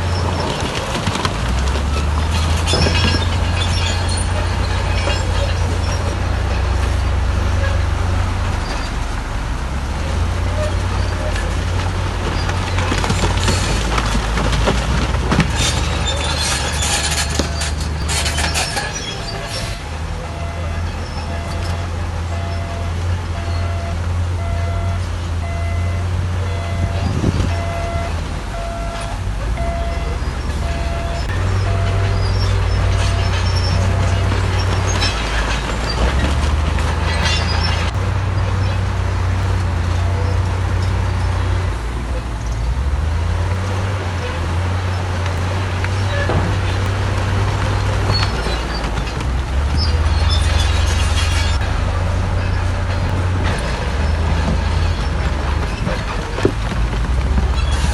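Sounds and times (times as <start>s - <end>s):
metal and rock grinding: 0.0s - 23.7s, 26.0s - 57.9s
diesel engine running: 0.0s - 57.9s.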